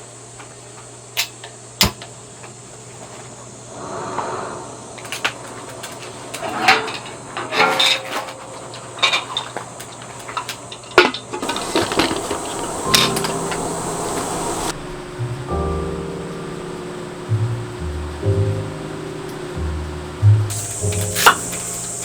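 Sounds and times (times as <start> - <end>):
steady low hum: 11.4 - 22.0.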